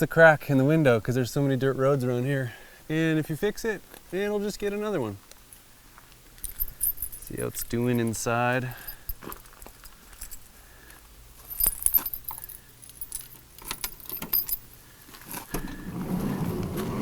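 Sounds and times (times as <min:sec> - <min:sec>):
rustle: 0:00.4 - 0:17.0
keys jangling: 0:06.4 - 0:10.6, 0:11.4 - 0:15.5
metallic clicks of keys in lock: 0:06.4 - 0:10.6, 0:11.5 - 0:14.8.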